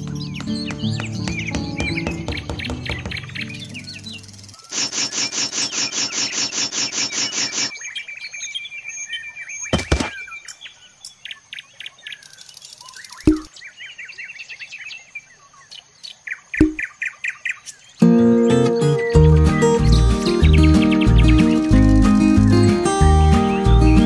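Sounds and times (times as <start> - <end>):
birds chirping and trilling: 0.0 - 24.0
rapid chattering bird call: 0.4 - 7.7
short knocks: 0.8 - 3.4.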